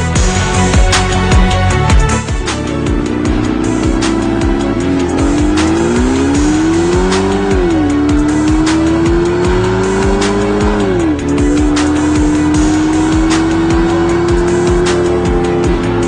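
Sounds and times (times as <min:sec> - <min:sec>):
music with a regular beat: 0:00.0 - 0:16.0
car engine accelerating hard: 0:00.2 - 0:16.0.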